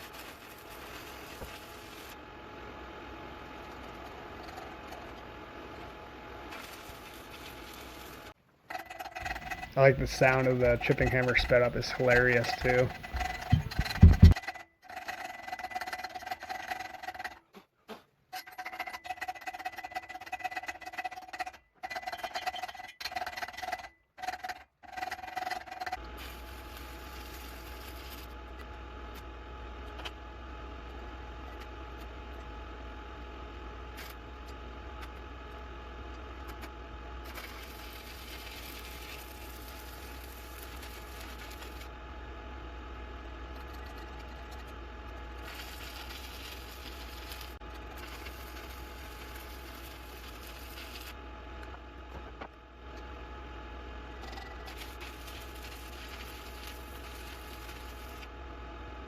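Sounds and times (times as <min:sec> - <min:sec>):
stick welding rasp: 0:06.5 - 0:14.4, 0:37.3 - 0:41.8, 0:45.4 - 0:51.2, 0:54.3 - 0:58.2
low hum: 0:09.2 - 0:14.4.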